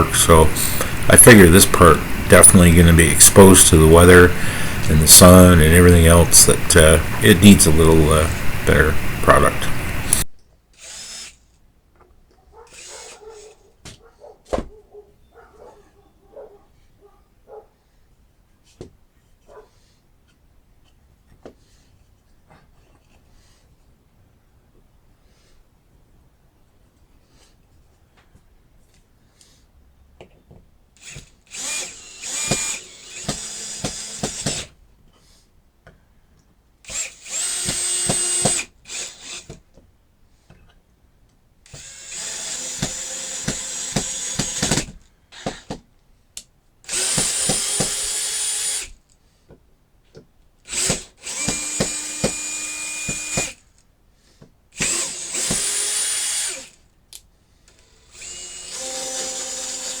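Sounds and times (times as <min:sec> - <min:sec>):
power drill running: 0:00.0 - 0:11.4, 0:12.7 - 0:13.5, 0:31.0 - 0:34.7, 0:36.8 - 0:39.6, 0:41.7 - 0:45.7, 0:46.9 - 0:49.0, 0:50.7 - 0:53.7, 0:54.8 - 0:56.8, 0:57.7 - 1:00.0.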